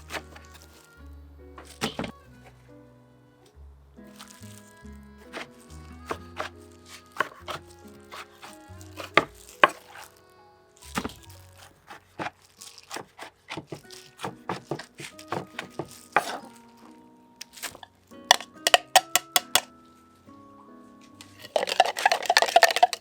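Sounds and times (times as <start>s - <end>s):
background music: 0.0s - 23.0s
knife chopping on cutting board: 12.9s - 16.5s.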